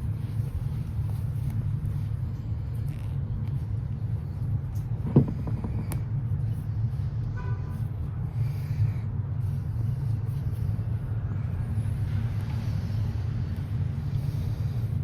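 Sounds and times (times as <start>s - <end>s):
short knock: 5.0s - 6.0s.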